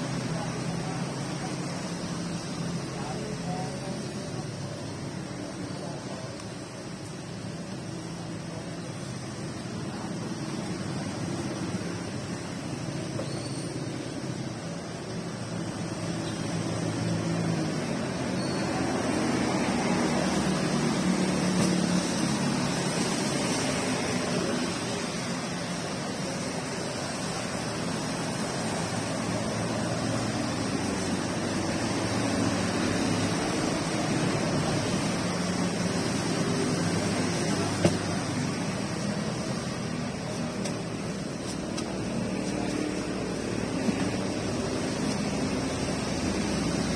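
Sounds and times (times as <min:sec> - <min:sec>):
passing traffic engine hum: 0:00.0 - 0:46.9
rain falling: 0:18.8 - 0:46.9.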